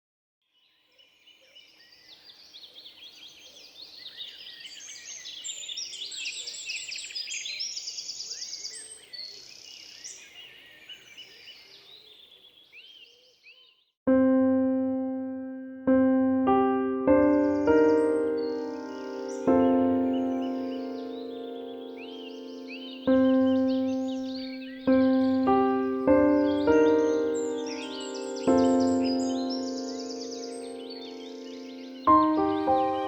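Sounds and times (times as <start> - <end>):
songbirds chirping and trilling: 0.5 - 14.0, 17.0 - 33.0
piano music: 14.1 - 33.0.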